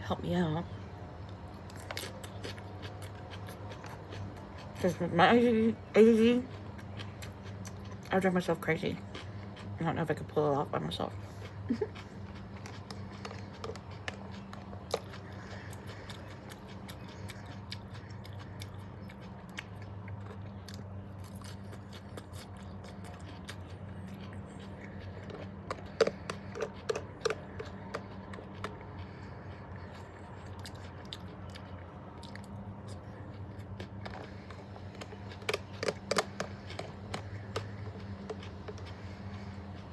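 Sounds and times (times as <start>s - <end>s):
steady low hum: 0.0s - 39.9s
person chewing and biting: 1.1s - 4.8s, 6.5s - 8.1s, 11.2s - 39.9s.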